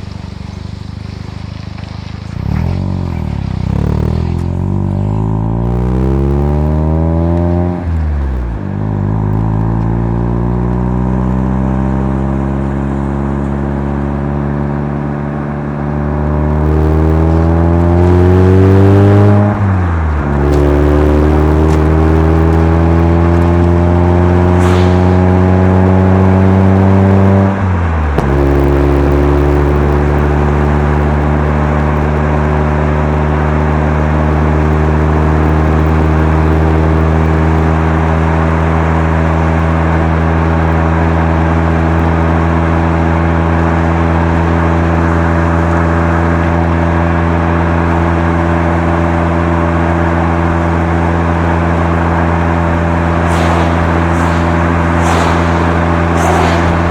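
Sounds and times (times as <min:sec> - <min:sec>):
rotary engine heard from inside car: 0:00.0 - 0:27.5.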